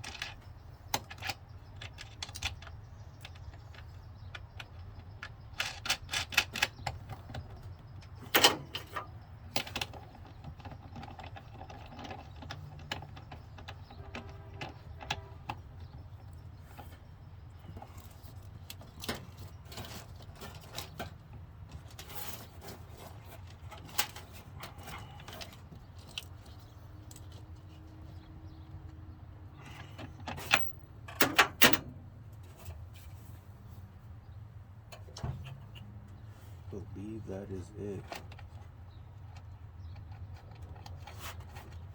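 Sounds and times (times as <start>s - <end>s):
tools and wires clicking: 0.0s - 32.8s.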